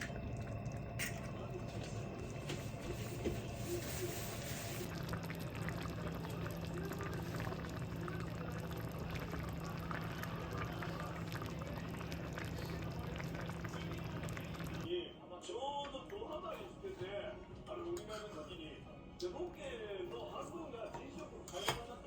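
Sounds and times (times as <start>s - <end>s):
steady low hum: 0.0s - 14.9s
stew bubbling in a pot: 0.0s - 14.9s.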